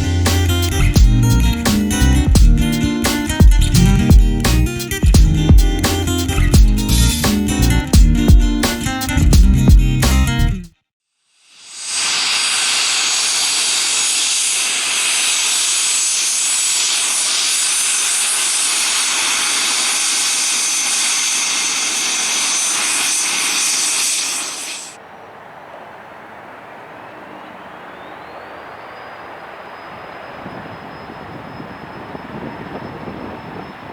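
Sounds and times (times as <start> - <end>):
jet engines with turbine whine: 11.6 - 25.0, 28.0 - 33.9.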